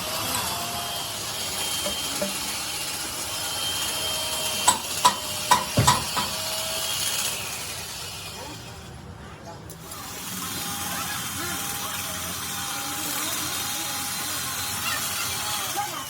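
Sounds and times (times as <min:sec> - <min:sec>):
machinery hissing and whining: 0:00.0 - 0:09.0, 0:09.8 - 0:16.0
sharp knocks: 0:04.7 - 0:06.4.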